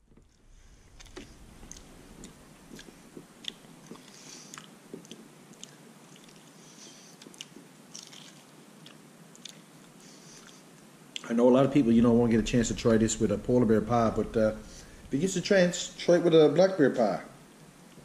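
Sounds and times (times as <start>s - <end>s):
person chewing meat: 0.9s - 10.7s
mouth clicks and smacks: 1.0s - 11.3s.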